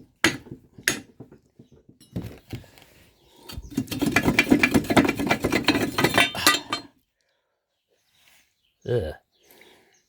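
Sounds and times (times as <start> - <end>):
tool mechanical rattle: 3.5 - 6.9
scattered knocks: 3.7 - 6.4.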